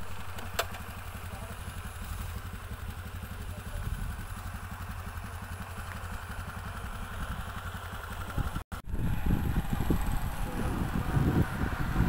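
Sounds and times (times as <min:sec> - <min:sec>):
small engine chugging: 0:00.0 - 0:12.0
rough low rumbling: 0:01.2 - 0:12.0.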